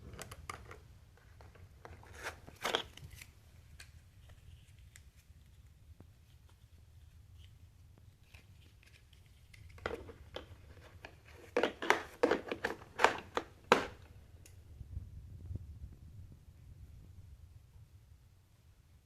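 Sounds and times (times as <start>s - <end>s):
low steady hum: 0.0s - 19.0s
handling clicks and crackles: 7.4s - 14.6s.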